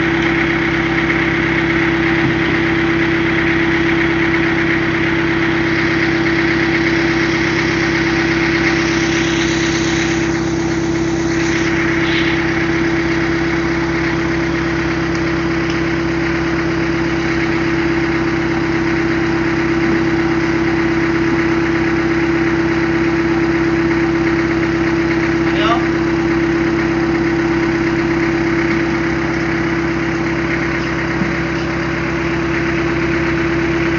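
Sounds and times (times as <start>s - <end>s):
rice milling machine running: 0.0s - 33.9s.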